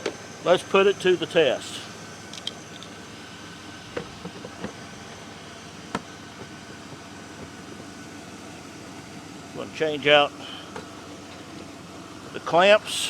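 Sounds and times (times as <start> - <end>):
air compressor humming: 0.0 - 13.0
sharp clicks and knocks: 2.3 - 3.0.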